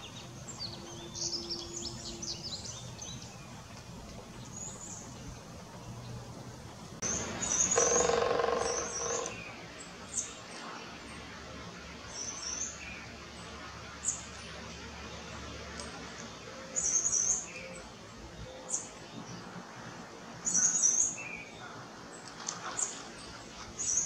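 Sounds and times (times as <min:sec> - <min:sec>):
bird twittering: 0:07.0 - 0:09.5.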